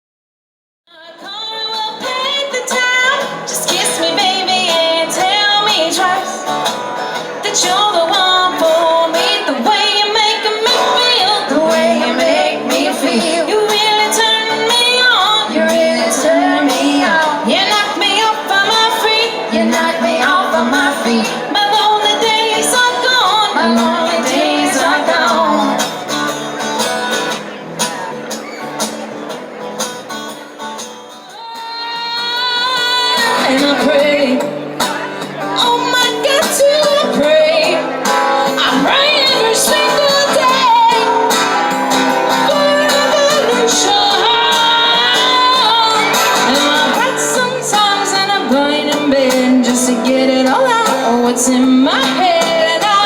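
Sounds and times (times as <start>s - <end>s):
woman singing: 0.9s - 6.7s, 7.4s - 25.9s, 31.3s - 53.0s
live band music: 2.6s - 53.0s.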